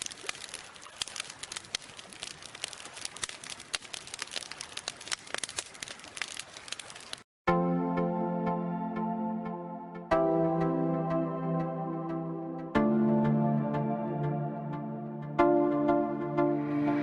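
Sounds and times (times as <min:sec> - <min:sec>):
bonfire crackling and popping: 0:00.0 - 0:07.3
soft synthesizer music: 0:07.5 - 0:17.0.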